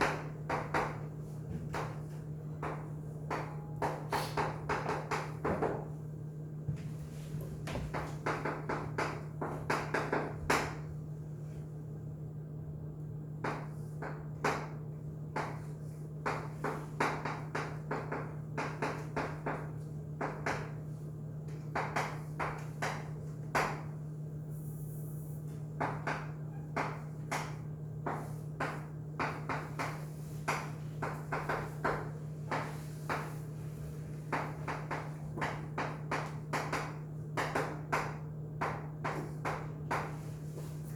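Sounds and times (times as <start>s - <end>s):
low electrical hum: 0.0s - 40.9s.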